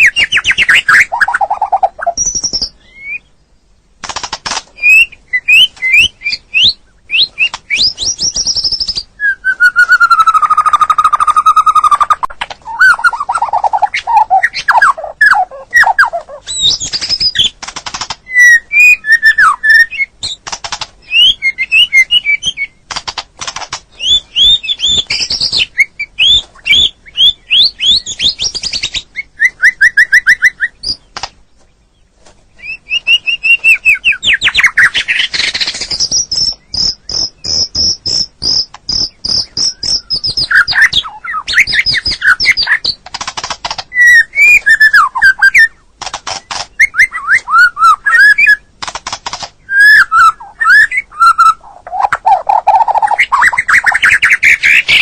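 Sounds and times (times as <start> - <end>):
bird singing varied song: 0.0 - 55.0.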